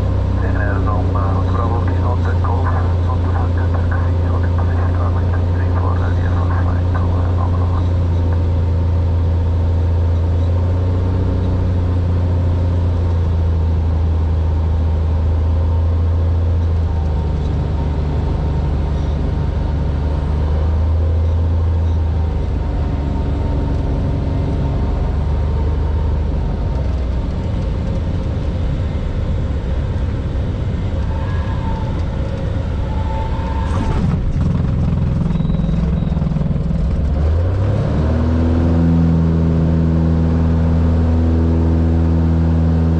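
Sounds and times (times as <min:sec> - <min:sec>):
propeller plane engine drone: 0:00.0 - 0:42.9.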